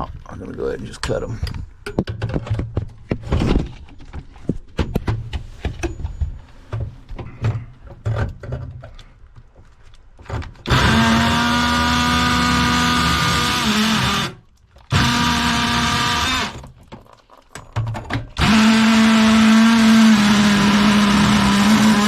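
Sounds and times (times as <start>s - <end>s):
tools clicking and knocking: 1.0s - 6.2s, 16.6s - 18.4s
power tool cutting metal: 10.7s - 16.6s, 18.4s - 22.0s.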